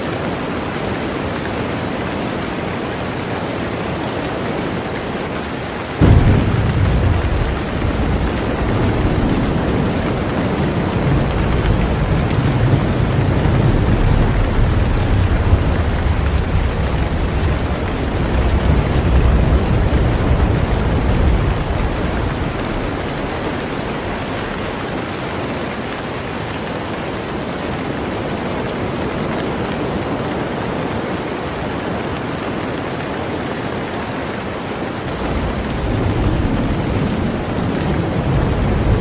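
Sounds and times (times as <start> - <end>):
heavy rain on a boat: 0.0 - 39.0
low rumble: 6.0 - 24.8.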